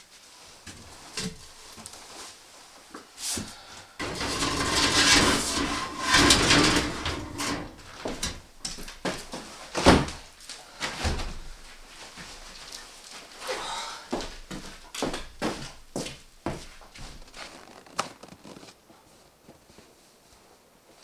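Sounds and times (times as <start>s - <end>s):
wood scraping and creaking: 4.0s - 8.6s.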